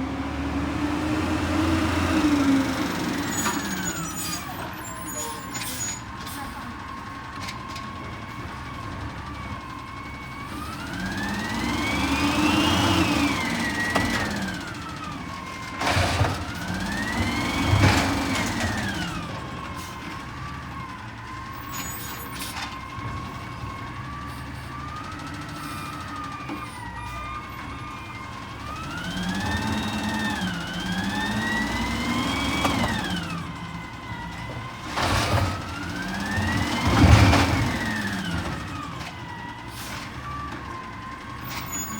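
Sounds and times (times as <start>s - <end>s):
truck engine revving: 0.0s - 4.6s, 10.4s - 21.7s, 27.2s - 41.9s.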